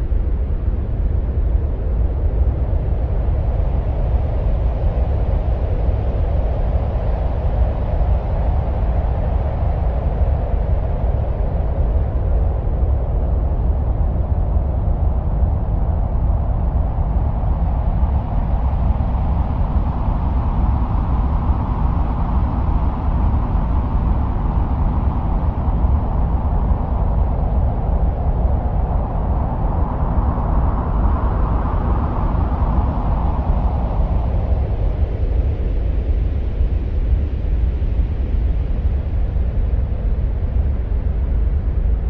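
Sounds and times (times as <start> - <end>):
wind-like rumble with hiss: 0.0 - 42.0.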